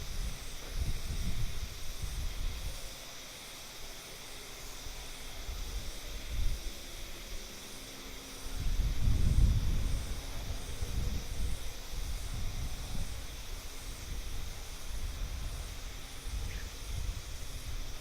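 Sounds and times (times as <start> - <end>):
wind gusting on microphone: 0.0 - 3.2, 4.8 - 7.5, 8.4 - 18.0
high outdoor hiss: 0.0 - 18.0.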